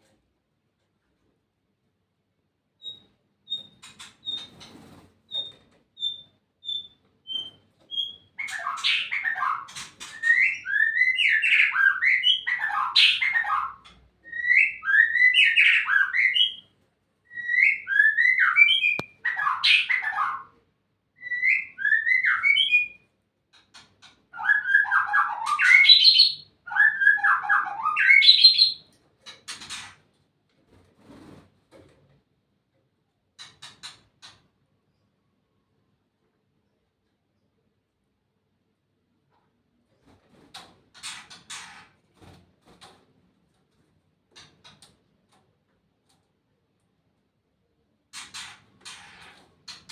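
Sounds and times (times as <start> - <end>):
bird singing whistled phrases: 17.3 - 20.4, 21.2 - 23.0.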